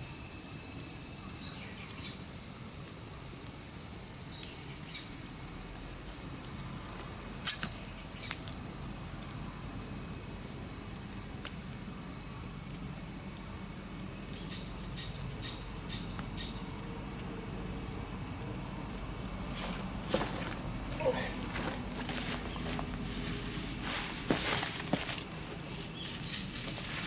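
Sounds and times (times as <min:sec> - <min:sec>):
insects trilling: 0:00.0 - 0:27.0
sharp snap: 0:07.4 - 0:07.8.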